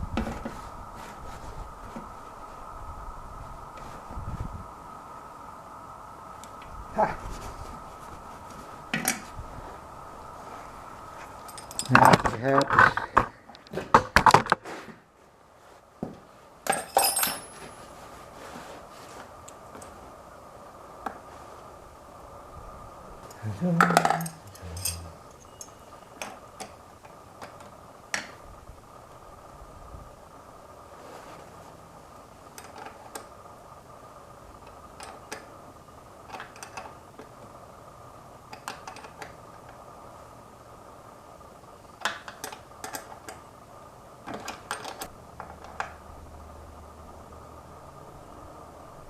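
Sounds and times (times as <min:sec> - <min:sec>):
faint steady hum: 0:00.0 - 0:49.0
metal tools clinking: 0:11.4 - 0:12.4, 0:16.7 - 0:17.8, 0:23.9 - 0:25.8.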